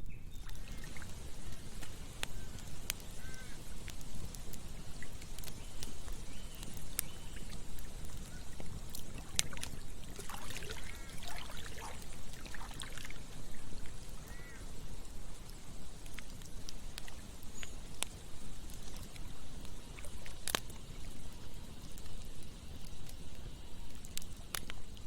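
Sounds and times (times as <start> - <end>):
campfire crackling and popping: 0.0 - 25.0
flowing water rushing: 0.5 - 5.3, 7.4 - 14.8.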